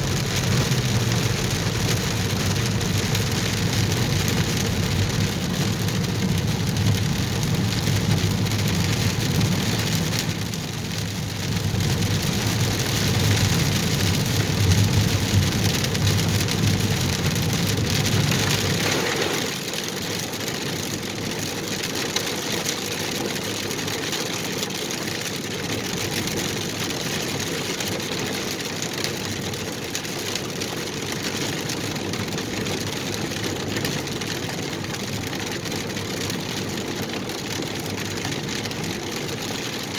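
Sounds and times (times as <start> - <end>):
rain hiss: 18.4 - 19.6.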